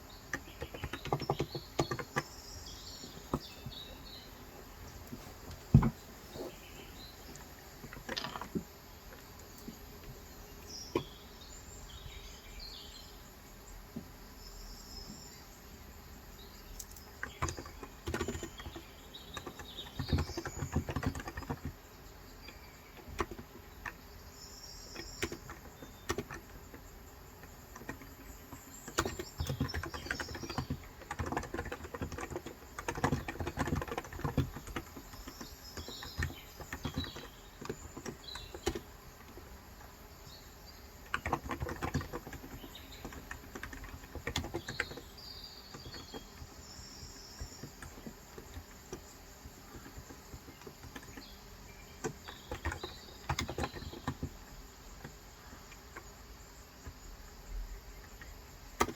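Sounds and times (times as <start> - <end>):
soft keyboard typing: 0.3 - 4.2, 16.7 - 24.0, 24.8 - 56.2, 58.0 - 58.9.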